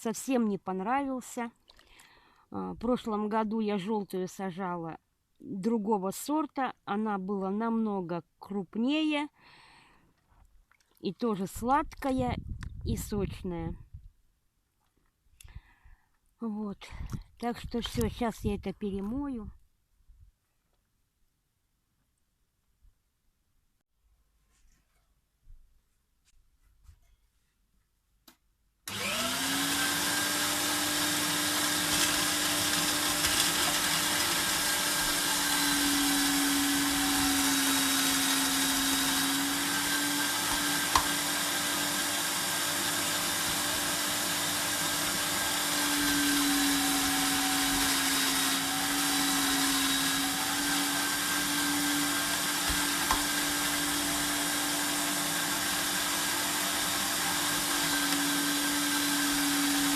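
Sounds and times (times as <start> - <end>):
food processor motor running: 28.9 - 59.9.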